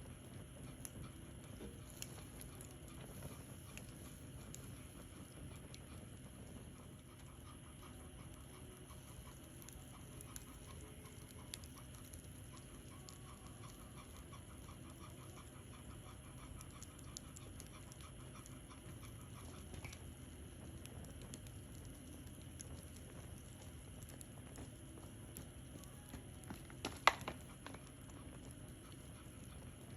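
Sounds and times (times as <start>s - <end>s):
wood fire crackling and popping: 0.0s - 29.9s
dog panting: 0.2s - 29.9s.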